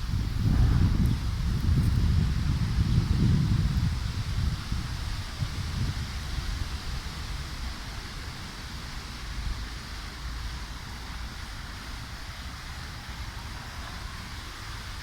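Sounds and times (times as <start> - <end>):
wind buffeting microphone: 0.0 - 7.5
wind hiss: 0.0 - 15.0.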